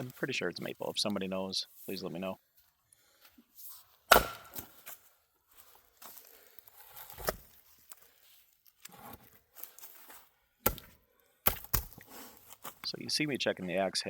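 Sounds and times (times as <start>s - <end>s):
axe striking a log: 4.1s - 5.0s, 10.6s - 12.0s.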